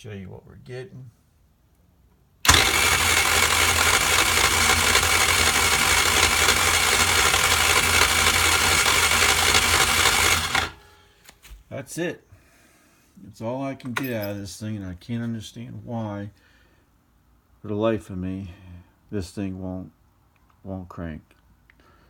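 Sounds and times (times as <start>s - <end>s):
starter cranking scooter engine: 2.5s - 10.8s.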